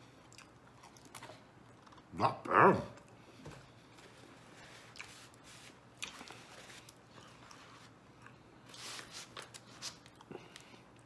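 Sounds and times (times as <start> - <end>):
man chewing food: 0.0 - 2.1, 3.0 - 8.8.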